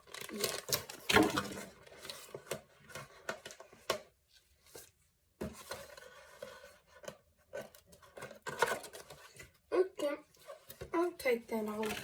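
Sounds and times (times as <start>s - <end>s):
plastic packaging rustling: 0.0s - 4.0s, 10.4s - 12.0s.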